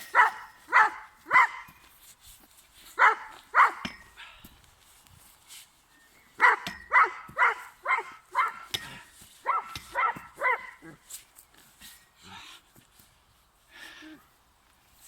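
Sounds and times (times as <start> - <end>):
dog barking: 0.1 - 1.7, 3.0 - 3.8, 6.4 - 8.7, 9.4 - 11.0.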